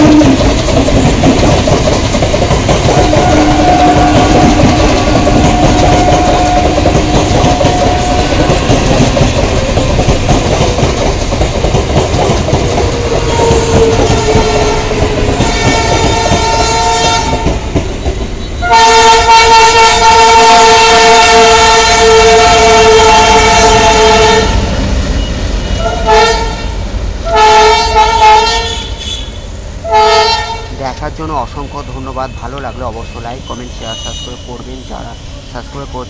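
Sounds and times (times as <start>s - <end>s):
loud diesel locomotive horn: 0.0s - 0.4s, 2.9s - 9.1s, 13.0s - 17.5s, 18.6s - 24.7s, 25.6s - 30.8s, 33.9s - 34.5s
train wheels clattering on rails: 0.0s - 26.0s
faint train horn: 2.9s - 9.0s, 13.1s - 17.5s, 18.6s - 24.6s, 25.6s - 30.8s, 33.0s - 35.8s.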